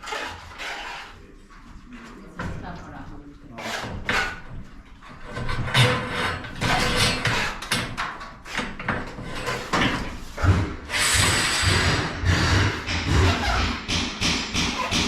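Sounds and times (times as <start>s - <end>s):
metal tools clattering and knocking: 3.8s - 10.6s.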